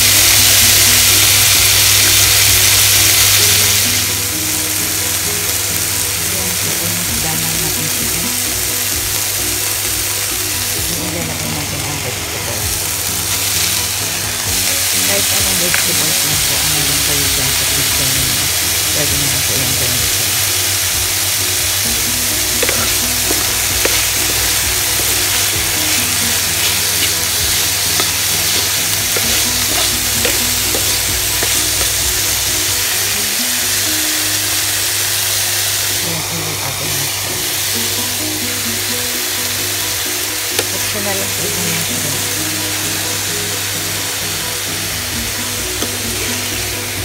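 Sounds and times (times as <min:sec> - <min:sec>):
food sizzling in frying pan: 0:00.0 - 0:47.0
spatula scraping pan: 0:21.9 - 0:33.2.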